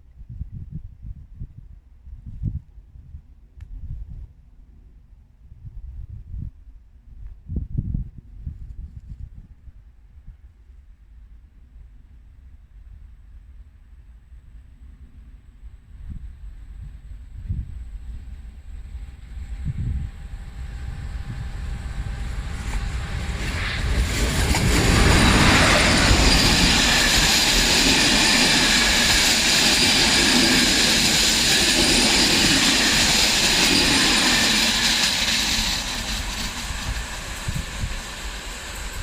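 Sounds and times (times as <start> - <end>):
train wheel and rail noise: 15.9 - 39.0.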